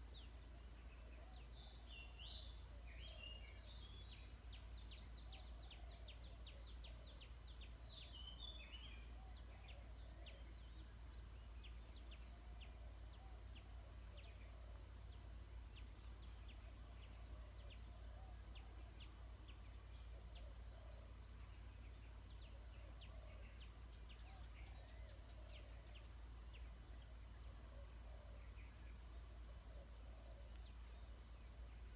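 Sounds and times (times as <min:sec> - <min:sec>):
high insect hiss: 0:00.0 - 0:31.9
small birds chirping: 0:00.0 - 0:31.9.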